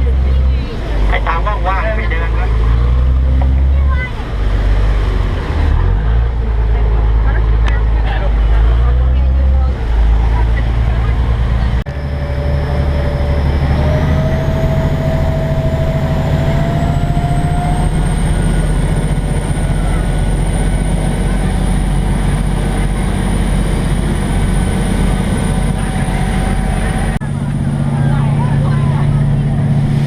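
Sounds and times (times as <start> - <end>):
boat engine running: 0.0 - 30.0
thin engine whine: 10.3 - 30.0.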